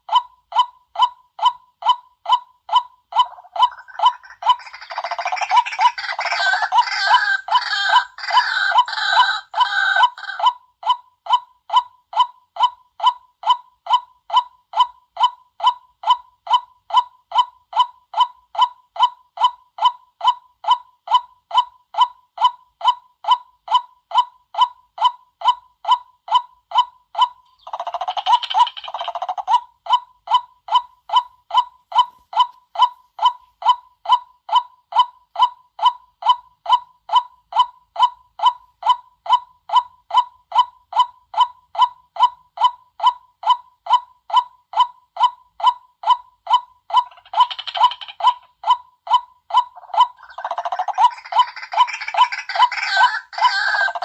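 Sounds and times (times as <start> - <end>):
waterhen calling: 3.2 - 10.5, 49.8 - 54.0.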